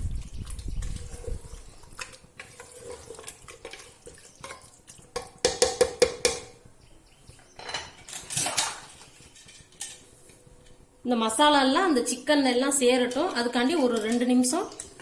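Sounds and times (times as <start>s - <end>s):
spoon scraping pan: 1.5s - 5.4s, 7.5s - 10.4s.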